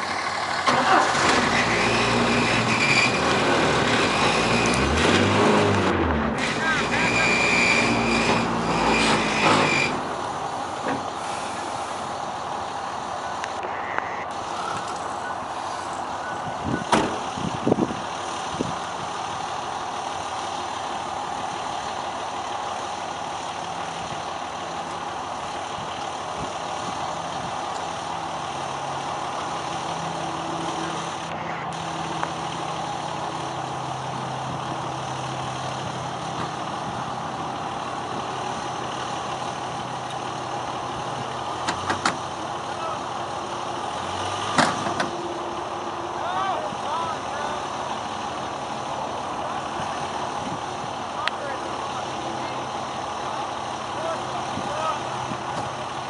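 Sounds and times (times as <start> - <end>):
pickup truck engine running: 0.0 - 56.0.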